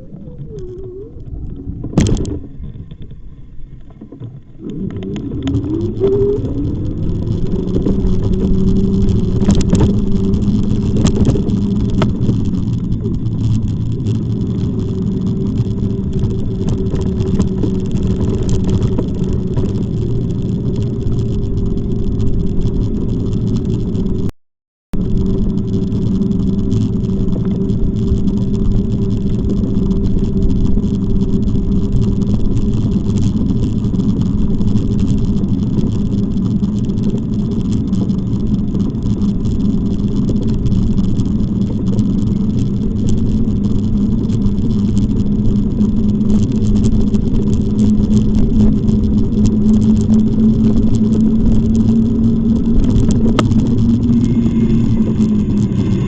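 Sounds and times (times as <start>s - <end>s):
low rushing noise: 47.8s - 56.0s
motor humming: 49.6s - 56.0s.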